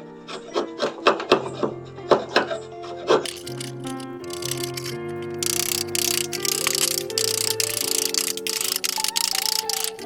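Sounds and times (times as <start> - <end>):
held chords: 1.6 - 10.0
quick ticking beat: 3.2 - 10.0.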